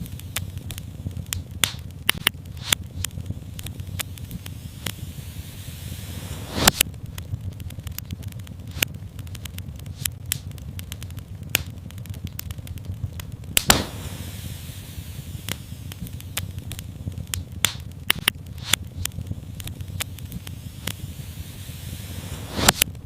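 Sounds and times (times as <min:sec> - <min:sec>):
loud pop of fire: 0:00.0 - 0:23.0
low rumble of flame: 0:00.0 - 0:23.0
wood fire crackling: 0:00.0 - 0:23.0
brief hiss: 0:04.2 - 0:06.8, 0:13.6 - 0:16.2, 0:20.2 - 0:22.8.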